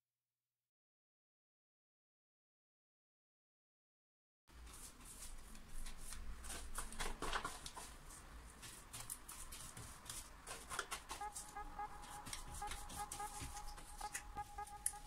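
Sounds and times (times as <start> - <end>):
brush against foil tray: 4.5 - 11.6.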